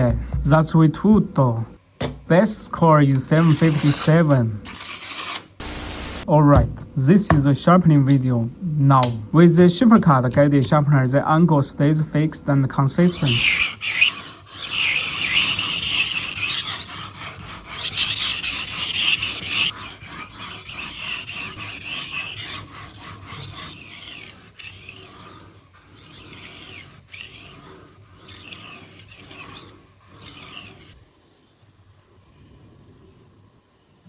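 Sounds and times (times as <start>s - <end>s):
sharpening stone scraping knife: 3.3s - 5.5s, 13.0s - 31.6s.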